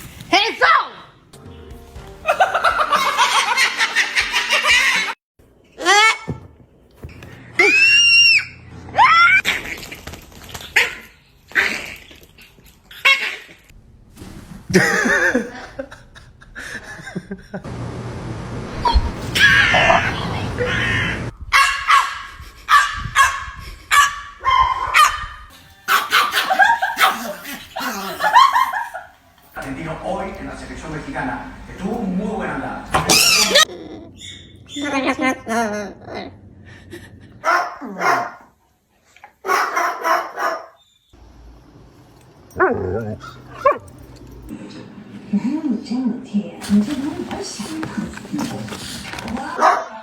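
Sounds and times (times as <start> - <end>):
dog yelping: 19.4 - 28.7, 33.0 - 35.0, 37.4 - 38.4, 39.5 - 40.9, 42.6 - 44.0
dog barking: 21.5 - 27.4, 37.4 - 38.5, 39.4 - 40.8, 49.6 - 50.0.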